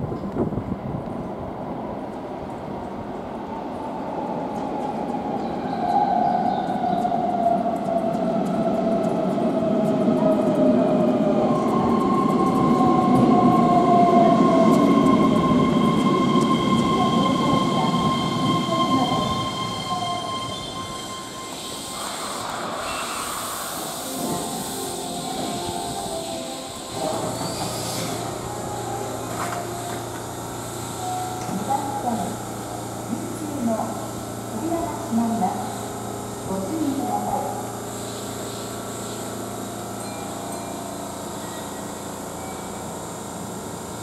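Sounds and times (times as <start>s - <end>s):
rumble of train wheels: 0.0s - 44.0s
electric train motor slowing: 4.2s - 44.0s
high-pitched brake squeal: 15.3s - 29.7s, 31.0s - 32.3s, 41.4s - 42.9s.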